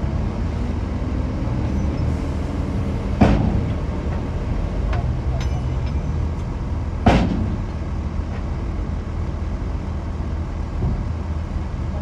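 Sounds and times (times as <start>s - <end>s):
bulldozer diesel engine running: 0.0s - 12.0s
sharp metallic clank: 5.3s - 6.4s.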